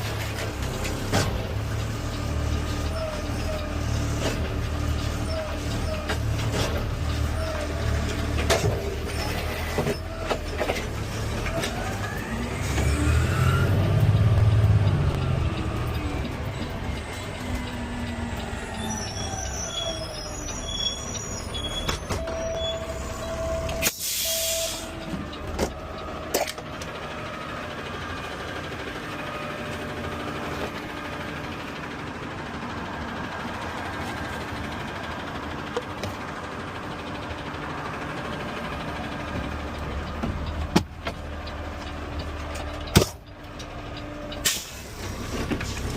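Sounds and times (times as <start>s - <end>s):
garbage truck engine running: 0.0s - 45.9s
hydraulic whines: 2.9s - 25.8s
air brake hiss: 23.8s - 25.0s, 44.4s - 45.1s.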